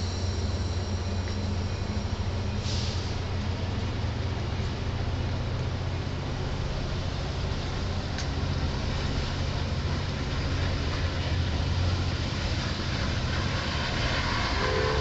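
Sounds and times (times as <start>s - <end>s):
diesel train engine hum: 0.0s - 15.0s
multi-note train horn: 14.4s - 15.0s.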